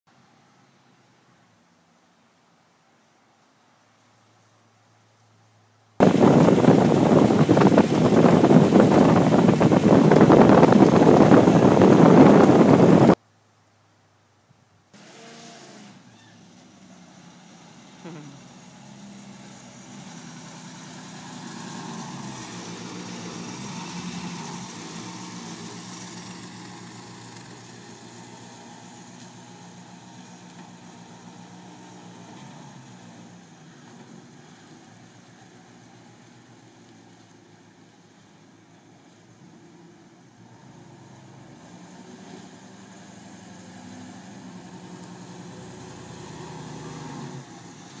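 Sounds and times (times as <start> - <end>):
car engine rolling past: 6.0 - 13.2, 15.0 - 48.0.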